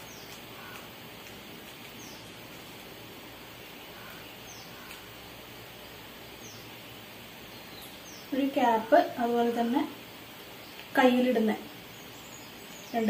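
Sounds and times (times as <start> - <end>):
small bird chirps: 0.0 - 2.8, 3.7 - 5.3, 6.3 - 8.9
background hiss: 0.0 - 13.0.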